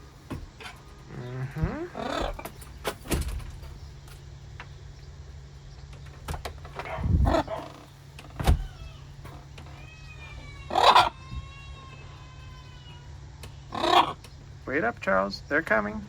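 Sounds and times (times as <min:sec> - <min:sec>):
parrot squawking: 0:01.1 - 0:02.6, 0:06.8 - 0:08.0, 0:08.6 - 0:14.3.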